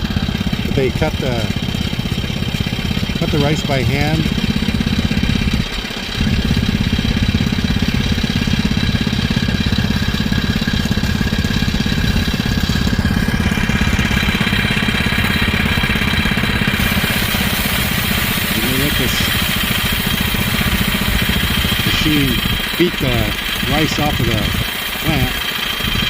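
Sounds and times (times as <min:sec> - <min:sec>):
threshing machine running: 0:00.0 - 0:26.0.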